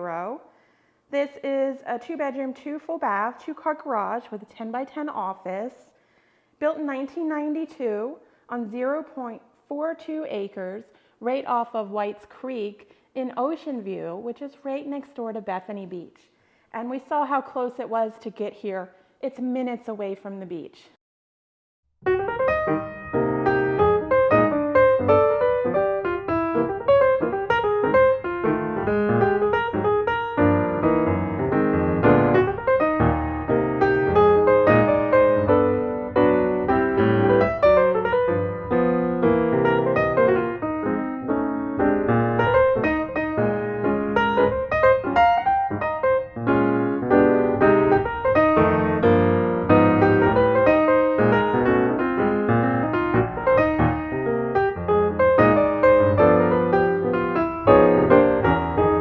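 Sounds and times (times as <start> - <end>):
piano melody with chords: 22.0 - 59.0.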